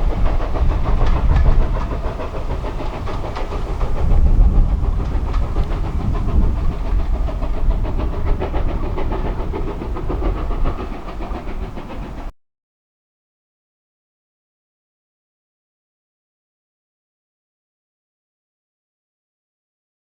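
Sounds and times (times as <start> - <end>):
train running: 0.0 - 12.3.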